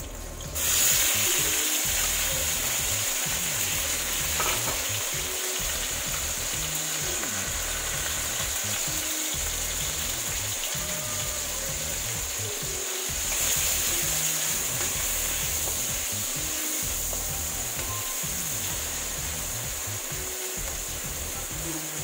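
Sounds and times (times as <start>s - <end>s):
tomatoes sizzling in a pan: 0.0s - 22.0s.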